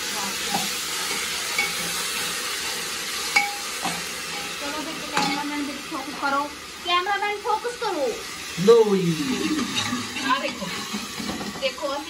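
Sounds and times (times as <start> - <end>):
paste sizzling in hot oil: 0.0 - 12.0
metal ladle clinking on pot: 3.3 - 4.5.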